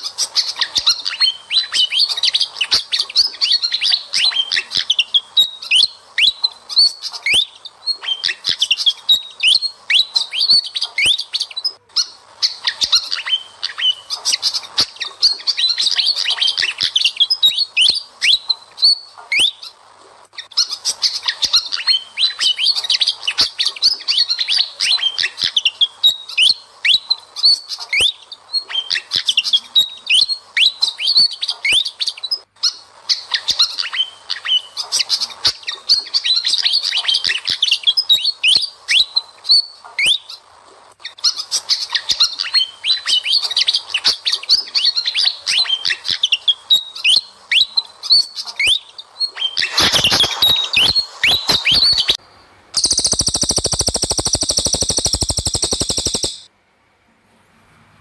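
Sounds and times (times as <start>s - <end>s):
songbirds chirping: 0.0s - 56.5s
fast buzzing pulse: 52.8s - 56.5s.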